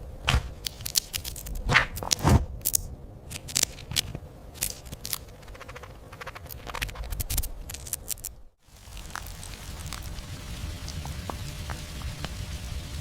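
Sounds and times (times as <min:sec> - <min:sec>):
dry clicks and scratchy crackles: 0:00.6 - 0:13.0
faint steady hum: 0:07.6 - 0:13.0.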